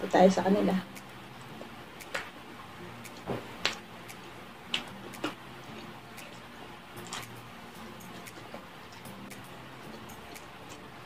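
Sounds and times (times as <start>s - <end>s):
mouth smacks and chewing clicks: 3.0s - 7.4s, 8.0s - 10.9s.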